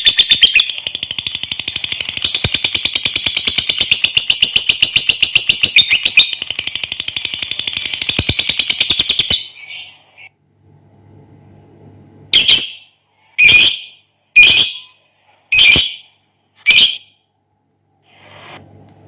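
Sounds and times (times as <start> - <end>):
bird chattering trill: 0.0 - 10.3
high bird squawks: 12.4 - 17.0.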